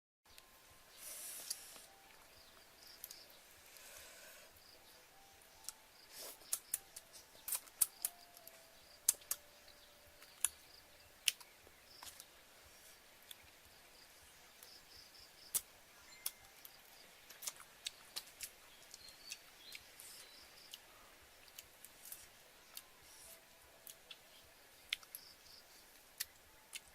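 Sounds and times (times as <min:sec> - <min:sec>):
faint background hiss: 0:00.3 - 0:26.9
sharp clicks and snaps: 0:03.0 - 0:03.2, 0:06.4 - 0:10.6, 0:11.2 - 0:12.3, 0:15.4 - 0:20.1.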